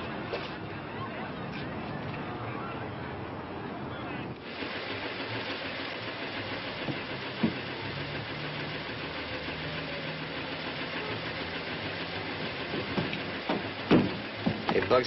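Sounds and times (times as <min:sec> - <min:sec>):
car engine running: 0:04.4 - 0:15.0.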